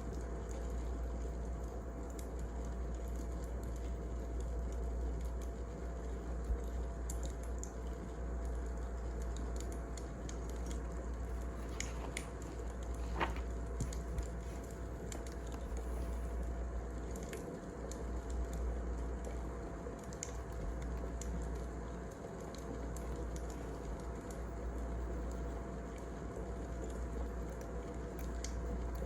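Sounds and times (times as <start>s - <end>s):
burning logs snapping and popping: 8.4s - 16.3s.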